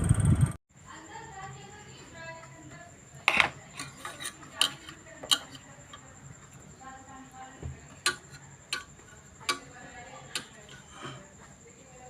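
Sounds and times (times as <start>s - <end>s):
hard objects clicking and tapping: 3.2s - 6.6s, 7.6s - 11.3s.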